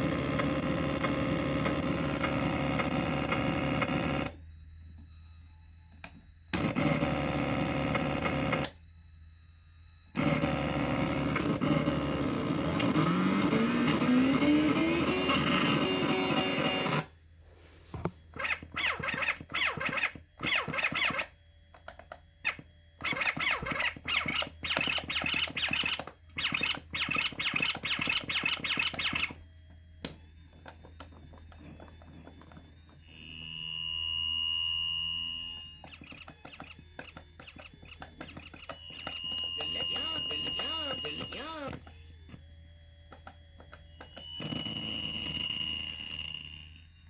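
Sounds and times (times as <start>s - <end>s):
high electronic tone: 10.2s - 17.2s, 22.5s - 47.0s
toy stuttering sound fragments: 22.4s - 29.4s, 35.8s - 42.0s.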